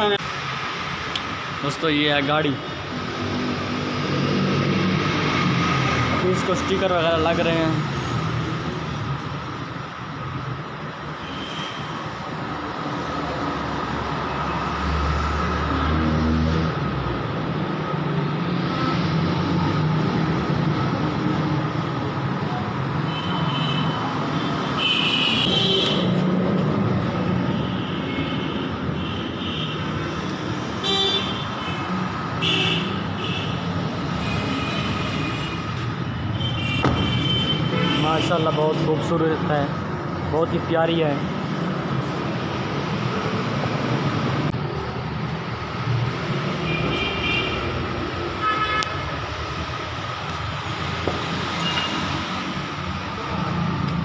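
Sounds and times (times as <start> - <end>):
road traffic noise: 0.0 - 54.0
vehicle horns honking: 48.4 - 49.0.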